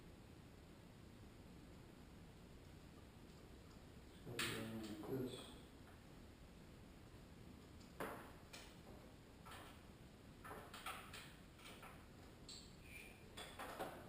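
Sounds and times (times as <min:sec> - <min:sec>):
faint clicks and light knocks: 0:02.6 - 0:06.0.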